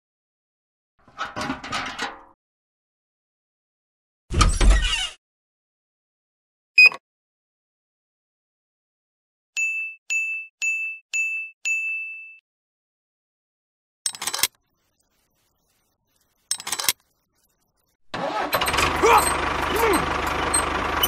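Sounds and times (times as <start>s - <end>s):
engine running: 18.1s - 21.0s.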